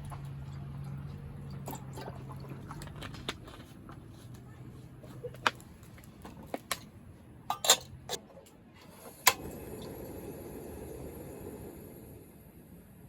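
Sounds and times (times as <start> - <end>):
dishes clinking and knocking: 7.5 - 8.2.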